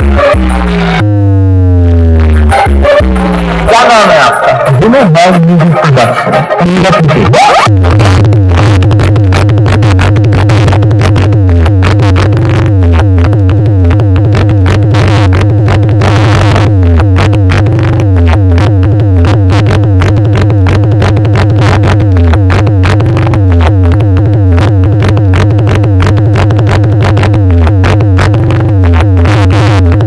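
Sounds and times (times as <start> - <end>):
electronic dance music: 0.0 - 30.0.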